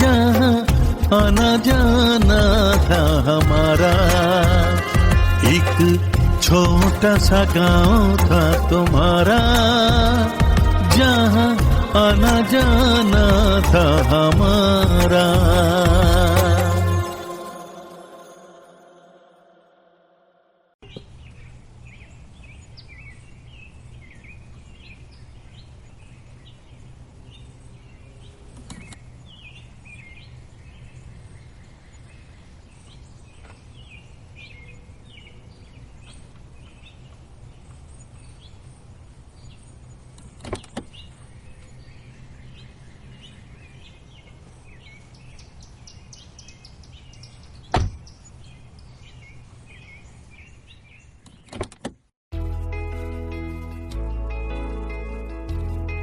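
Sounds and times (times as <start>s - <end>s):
birds chirping: 20.8s - 51.7s.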